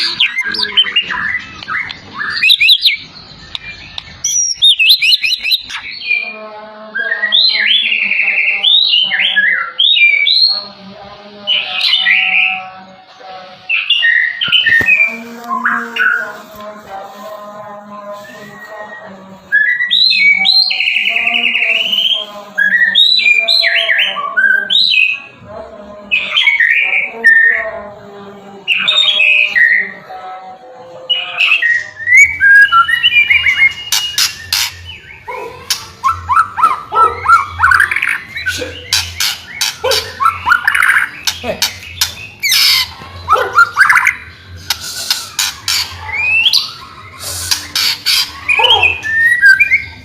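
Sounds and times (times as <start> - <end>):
bird singing whistled phrases: 0.0 - 6.2, 18.2 - 25.2, 31.2 - 50.0.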